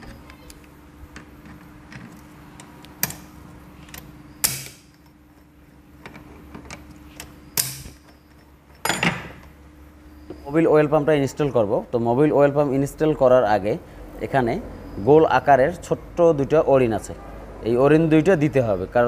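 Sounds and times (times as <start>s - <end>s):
metal parts clinking and knocking: 0.0s - 9.6s.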